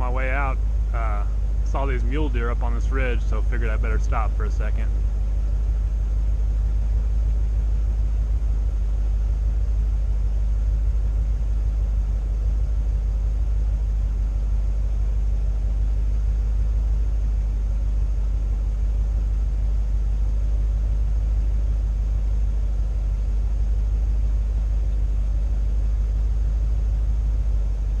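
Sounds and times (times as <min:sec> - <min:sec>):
truck engine rumbling: 0:00.0 - 0:06.4.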